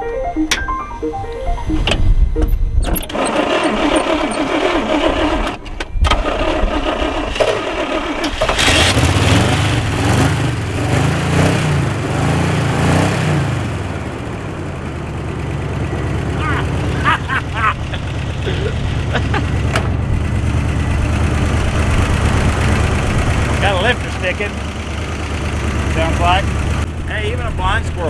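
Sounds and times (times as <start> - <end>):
starter motor cranking: 0.5 - 10.6, 15.8 - 28.0
engine revving: 1.4 - 28.0.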